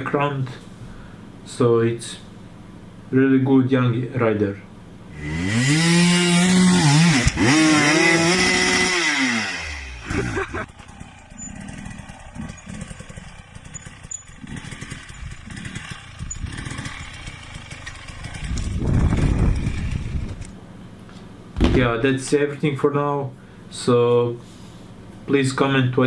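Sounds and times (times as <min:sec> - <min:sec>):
dirt bike engine revving: 0:05.1 - 0:20.5
engine clicks and clatter: 0:10.5 - 0:20.6.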